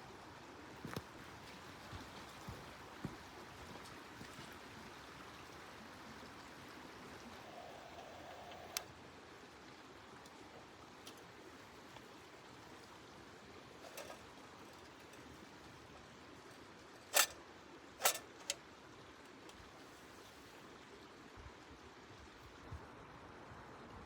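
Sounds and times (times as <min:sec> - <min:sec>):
faint clicks: 0:07.4 - 0:08.9.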